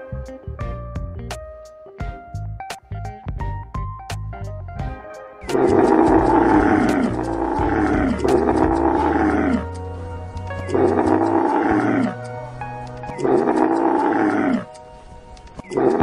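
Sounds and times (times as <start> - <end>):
background music: 0.0 - 16.0
animal giving long rough calls: 5.5 - 14.8, 15.7 - 16.0.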